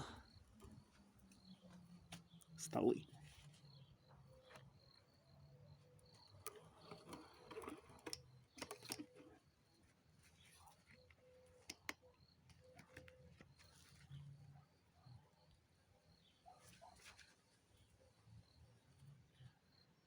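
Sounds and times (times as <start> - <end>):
faint clicks and knocks: 6.0 - 9.4.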